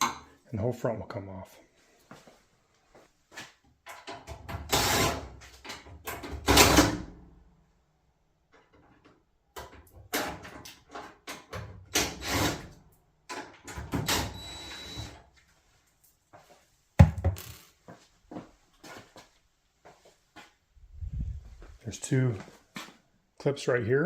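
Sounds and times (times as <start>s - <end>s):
sharp knock: 17.0s - 17.6s.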